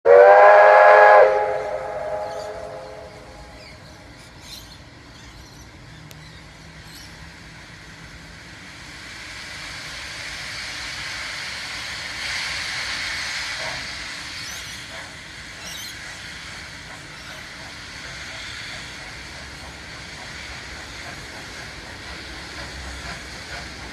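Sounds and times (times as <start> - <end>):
train noise: 0.0 - 23.9
steam whistle chord: 0.1 - 3.6
steam hissing: 0.1 - 23.9.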